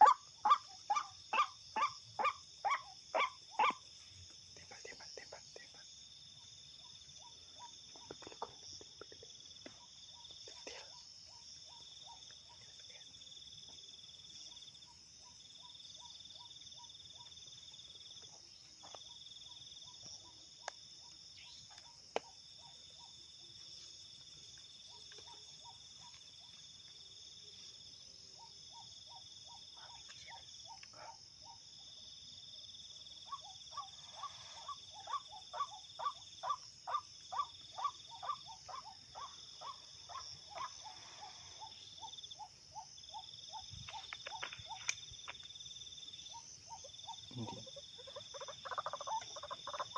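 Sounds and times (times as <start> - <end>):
night insects chirring: 0.0 - 49.9.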